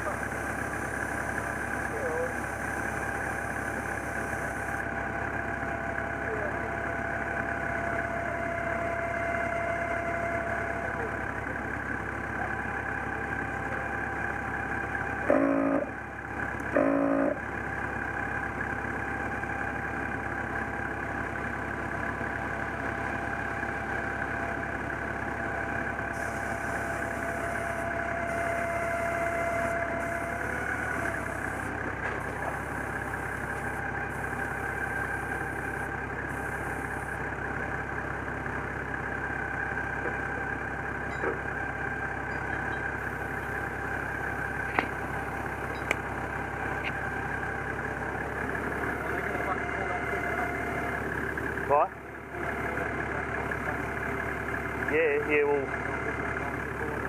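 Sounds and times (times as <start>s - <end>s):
engine idling: 0.0s - 57.0s
loud horn honks: 8.0s - 10.9s, 15.2s - 16.0s, 16.7s - 17.4s, 26.2s - 31.4s, 48.9s - 51.0s.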